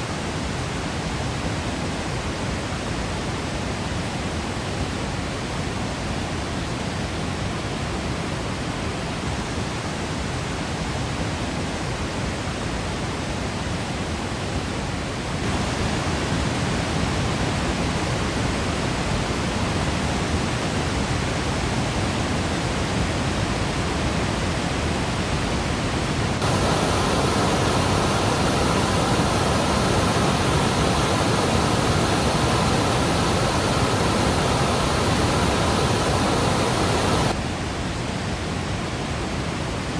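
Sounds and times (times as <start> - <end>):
waterfall rushing: 15.4 - 16.4, 26.4 - 37.4.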